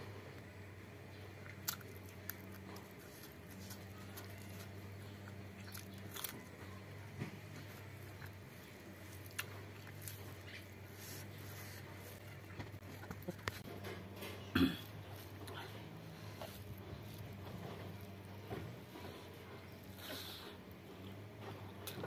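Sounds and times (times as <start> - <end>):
person chewing food: 1.1 - 22.0
crunchy bites: 1.4 - 6.6.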